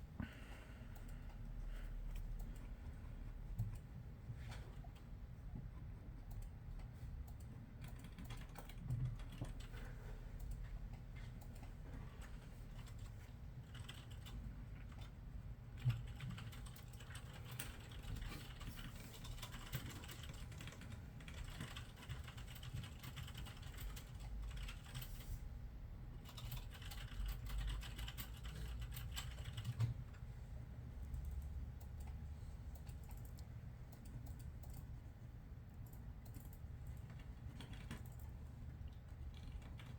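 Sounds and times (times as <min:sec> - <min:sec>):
steady low hum: 0:00.0 - 0:39.9
typing on a computer keyboard: 0:03.5 - 0:03.9, 0:06.2 - 0:25.3, 0:26.2 - 0:30.2, 0:31.0 - 0:35.0, 0:35.7 - 0:39.9.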